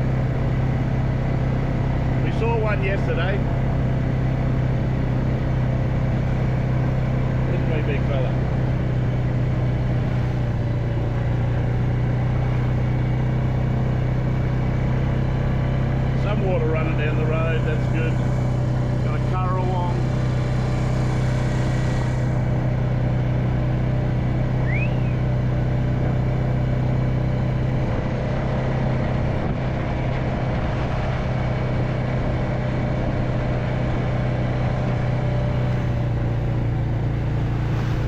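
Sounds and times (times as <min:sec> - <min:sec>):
vehicle engine running: 0:00.0 - 0:38.0.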